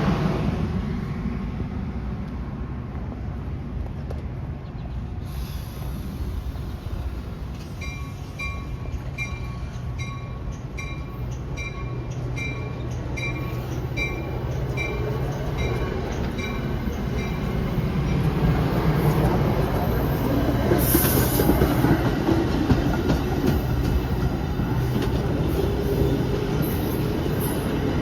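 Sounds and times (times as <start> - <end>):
train rumbling: 0.0 - 28.0
railroad bell ringing: 7.6 - 20.5.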